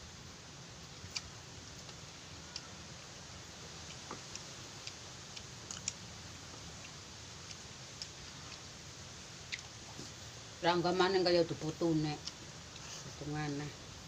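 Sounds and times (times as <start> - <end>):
faint steady hiss: 0.0 - 14.0
chewing and lip smacks: 3.8 - 8.7, 9.4 - 10.2.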